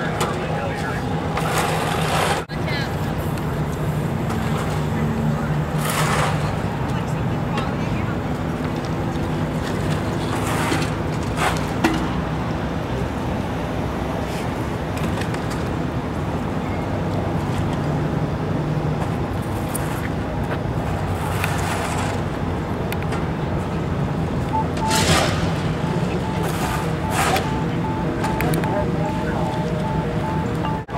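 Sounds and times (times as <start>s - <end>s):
traffic noise: 0.0s - 30.9s
vehicles passing: 0.0s - 30.9s.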